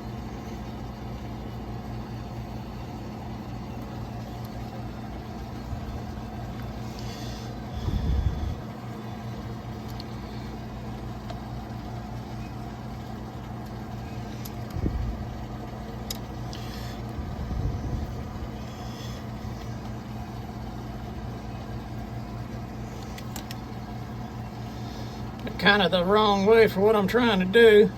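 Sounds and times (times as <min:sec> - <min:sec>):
low machine hum: 0:00.0 - 0:27.9.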